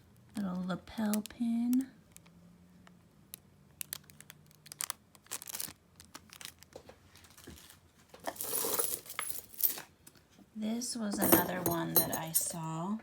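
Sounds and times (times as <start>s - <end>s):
metal jewelry clinking: 8.3s - 9.9s, 11.1s - 12.8s.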